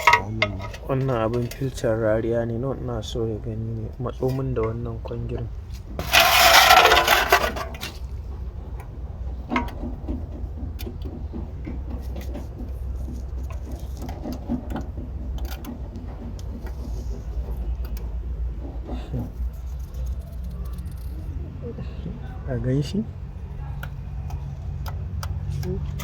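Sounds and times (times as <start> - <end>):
metal parts clicking and scraping: 0.0 - 1.9, 5.7 - 8.2
steady low hum: 0.0 - 11.7.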